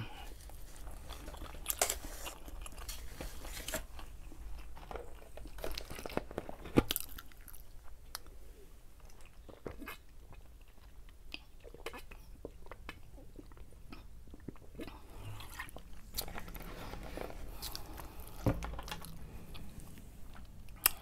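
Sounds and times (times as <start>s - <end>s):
person chewing: 3.9s - 8.4s, 9.0s - 21.0s.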